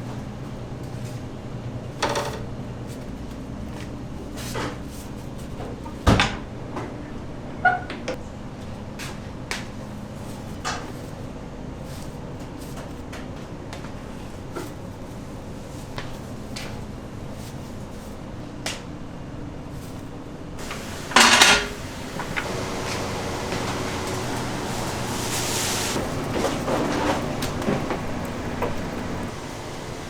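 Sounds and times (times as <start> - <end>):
kitchen knocks and clinks: 20.6 - 25.1
loud clatter: 20.6 - 30.0
steady hum: 20.6 - 30.0.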